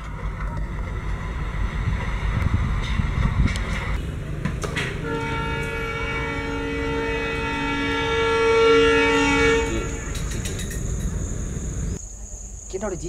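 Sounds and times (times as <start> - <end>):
train horn blast: 4.9 - 10.4.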